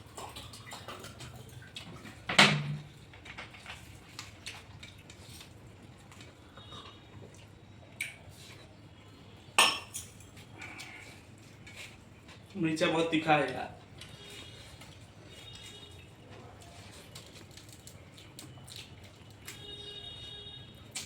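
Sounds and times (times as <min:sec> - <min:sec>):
dishes and utensils clinking: 0:09.6 - 0:10.3.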